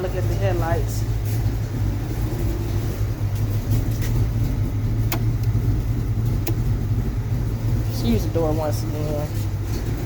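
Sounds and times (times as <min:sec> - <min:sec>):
car engine idling: 0:00.0 - 0:10.0
sharp click: 0:05.1 - 0:05.6.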